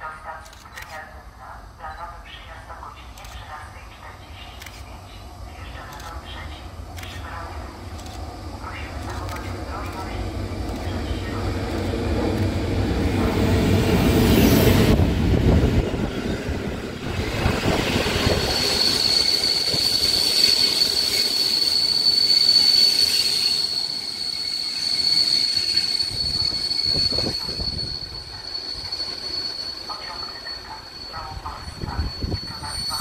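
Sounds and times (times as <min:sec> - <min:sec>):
train wheels rumbling on track: 0:03.0 - 0:33.0
high-pitched wheel squeal: 0:17.5 - 0:33.0.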